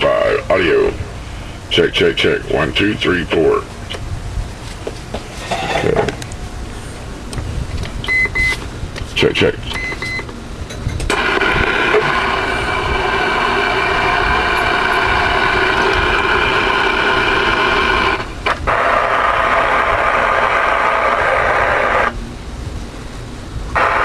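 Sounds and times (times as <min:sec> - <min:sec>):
radio static hiss: 0:00.0 - 0:04.0, 0:11.1 - 0:22.2, 0:23.7 - 0:24.0.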